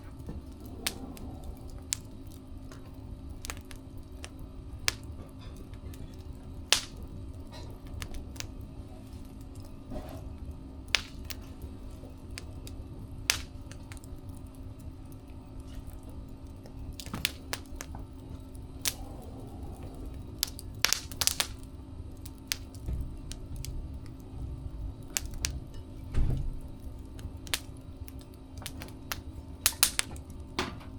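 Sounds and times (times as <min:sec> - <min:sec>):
steady low hum: 0:00.0 - 0:30.9
wood fire crackling and popping: 0:00.0 - 0:30.9
low rumble: 0:17.9 - 0:28.7.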